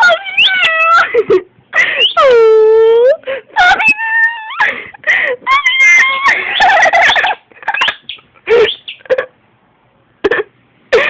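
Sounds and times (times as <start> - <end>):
dog whining: 0.0 - 1.1, 3.6 - 4.7.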